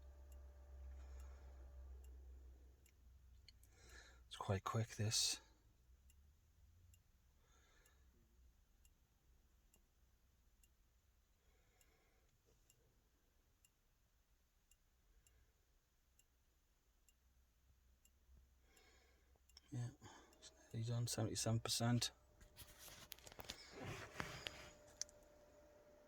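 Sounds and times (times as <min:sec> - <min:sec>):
faint regular ticking: 0:00.0 - 0:23.8.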